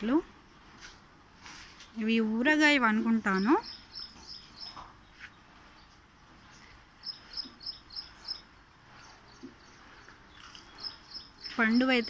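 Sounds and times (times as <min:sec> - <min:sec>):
faint outdoor hiss: 0:00.0 - 0:12.0
small bird chirping: 0:03.1 - 0:12.0.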